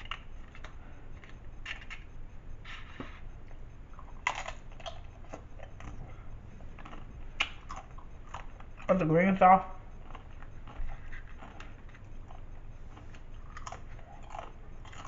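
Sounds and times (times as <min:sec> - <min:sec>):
chips being crunched and chewed: 0:04.2 - 0:06.0, 0:13.1 - 0:15.0.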